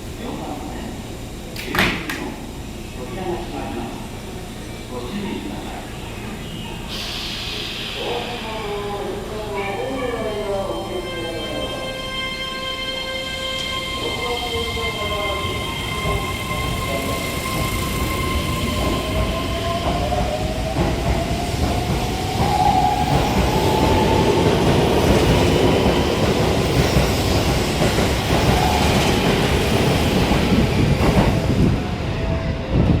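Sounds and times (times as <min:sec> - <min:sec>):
train wheels rumbling on rails: 0:13.3 - 0:33.0.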